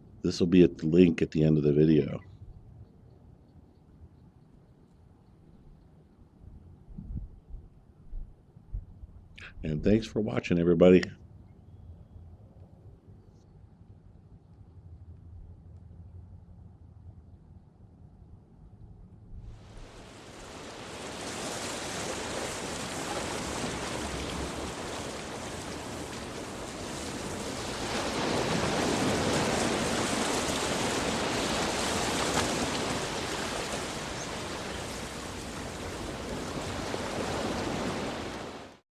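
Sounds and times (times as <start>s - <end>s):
ocean surf: 19.6s - 38.8s.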